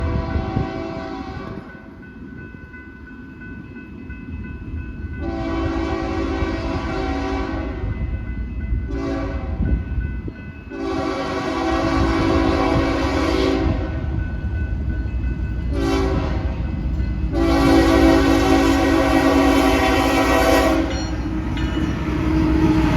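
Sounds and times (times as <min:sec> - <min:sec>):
locomotive air horn blasts: 0:00.0 - 0:01.7, 0:05.2 - 0:07.9, 0:08.9 - 0:09.6, 0:10.7 - 0:14.1, 0:15.7 - 0:16.5, 0:17.3 - 0:21.0
train rumbling: 0:00.0 - 0:22.9.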